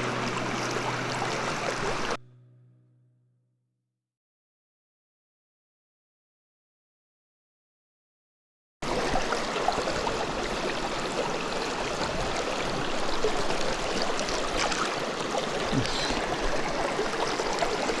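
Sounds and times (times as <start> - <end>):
stream water running: 0.0 - 2.2, 8.8 - 18.0.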